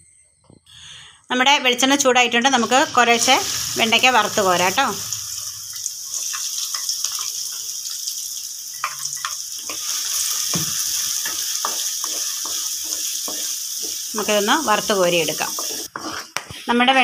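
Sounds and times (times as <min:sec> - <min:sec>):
okra sizzling in hot oil: 0:02.5 - 0:16.7
wooden spatula scraping a pan: 0:08.9 - 0:17.0.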